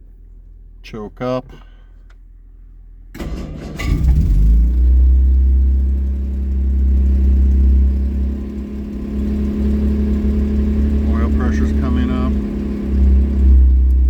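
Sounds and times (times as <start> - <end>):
car engine cranking: 3.1 - 14.0
car engine fast idle: 3.2 - 14.0.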